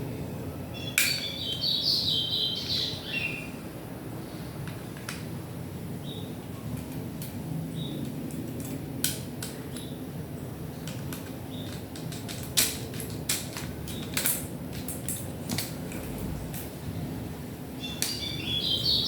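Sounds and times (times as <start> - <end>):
steady low hum: 0.0 - 12.0
small parts and tools clicking: 10.8 - 16.7.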